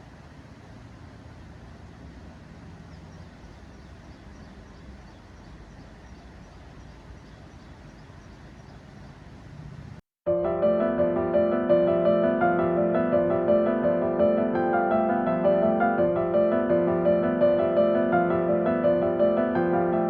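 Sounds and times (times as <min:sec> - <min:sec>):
low outdoor rushing noise: 0:00.0 - 0:20.0
small bird chirping: 0:02.8 - 0:09.5.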